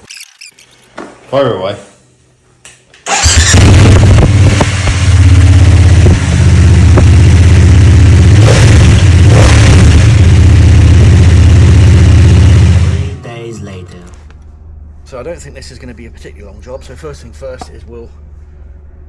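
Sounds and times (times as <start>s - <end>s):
motorcycle engine starting and running: 3.0s - 13.2s.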